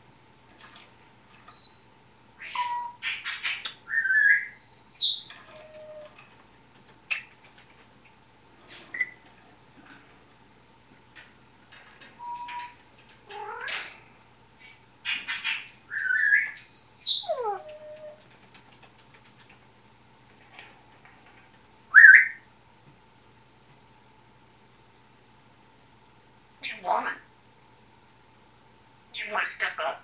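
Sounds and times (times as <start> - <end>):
parrot whistling and chattering: 2.4 - 6.1, 8.9 - 9.2, 15.1 - 18.0, 21.9 - 22.4.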